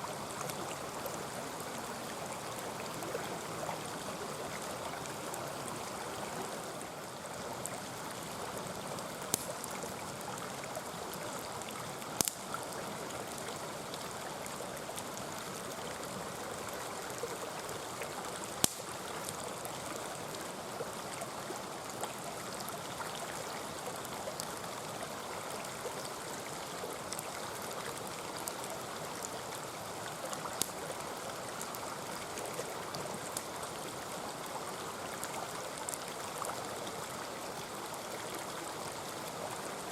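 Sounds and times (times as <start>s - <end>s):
stream burbling: 0.0s - 39.9s
campfire crackling and popping: 7.3s - 14.1s, 16.8s - 20.0s, 26.5s - 33.8s.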